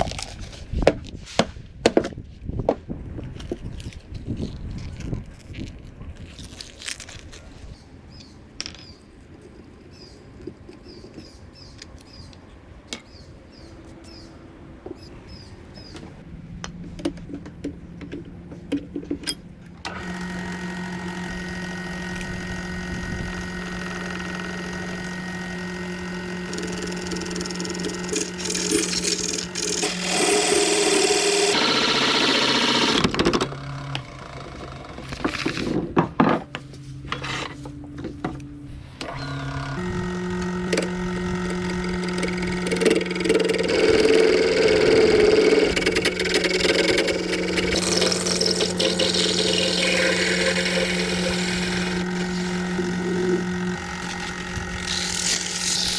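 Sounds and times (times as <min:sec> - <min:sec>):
tool scraping spinning bamboo: 0:19.9 - 0:33.1, 0:39.8 - 0:55.9
lathe motor humming: 0:19.9 - 0:35.2, 0:39.0 - 0:55.9.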